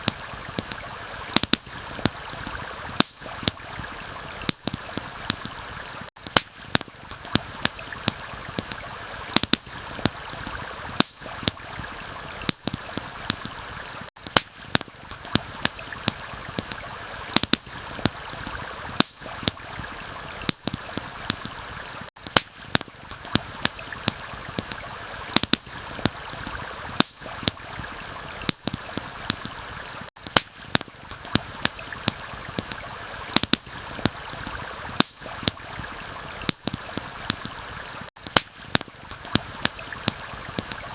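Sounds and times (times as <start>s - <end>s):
campfire crackling and popping: 0.0s - 40.9s
stream flowing: 0.0s - 40.9s.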